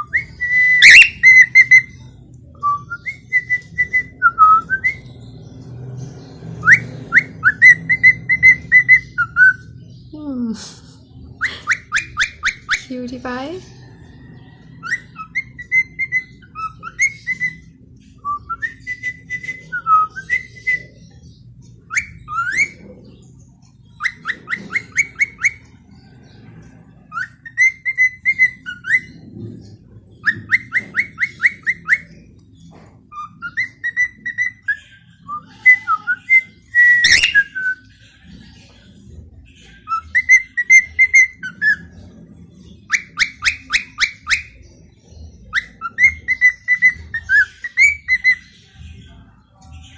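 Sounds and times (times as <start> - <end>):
cockatiel whistling: 0.0 - 1.9, 11.4 - 12.9, 24.0 - 25.6, 33.1 - 37.8, 42.9 - 44.6, 45.5 - 48.4
harsh bird call: 35.3 - 37.6.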